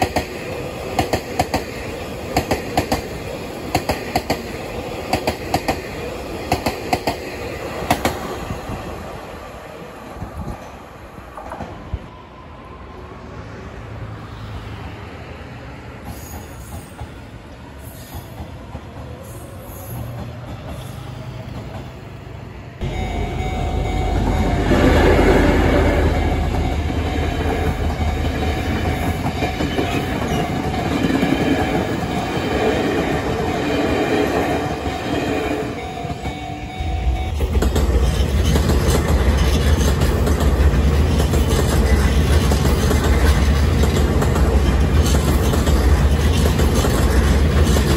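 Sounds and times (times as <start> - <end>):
electric train running past: 0.0 - 47.9
crossing warning tone: 22.8 - 38.6
electric train pulling away: 22.8 - 47.9
train wheels clattering over joints: 37.4 - 47.9.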